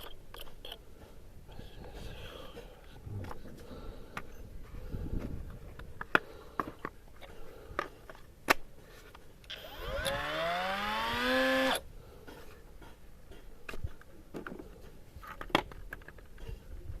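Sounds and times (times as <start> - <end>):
small electric motor whine: 9.5 - 11.8.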